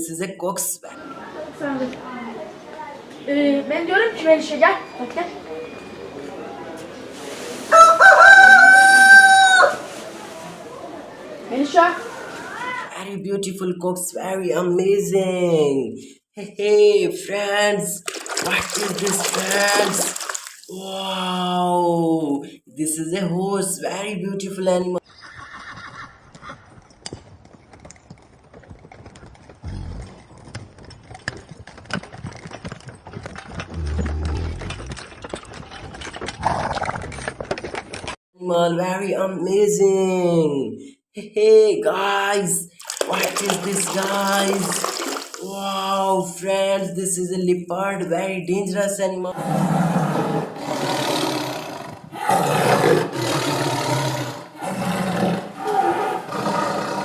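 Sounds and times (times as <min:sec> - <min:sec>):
horse hooves clip-clopping: 0:25.3 - 0:38.2
leopard roaring: 0:33.7 - 0:35.0, 0:49.4 - 0:57.0.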